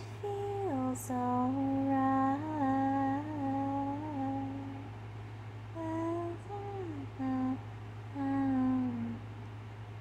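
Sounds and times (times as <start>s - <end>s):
woman humming: 5.8s - 9.2s.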